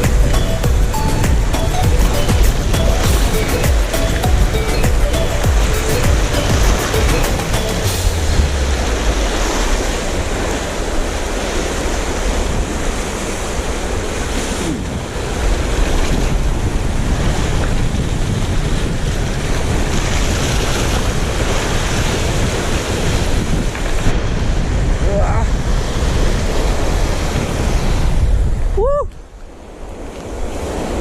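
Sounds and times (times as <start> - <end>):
sea waves washing ashore: 0.0 - 31.0
wind buffeting microphone: 0.0 - 31.0.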